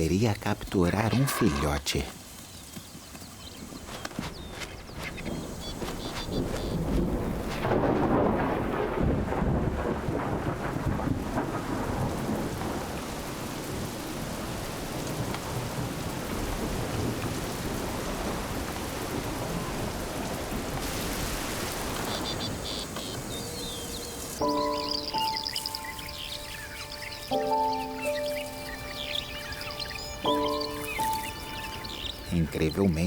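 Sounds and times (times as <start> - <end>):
steady rain: 2.0 - 33.0
thunder rumble: 4.9 - 26.9.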